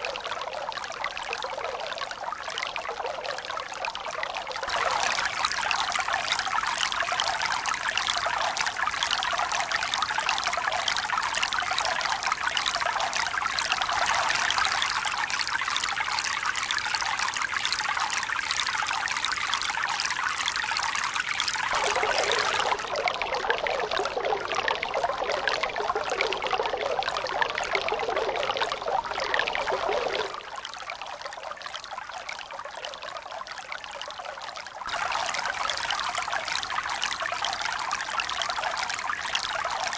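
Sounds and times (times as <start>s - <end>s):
running splashing water: 4.7s - 10.2s, 21.3s - 23.0s.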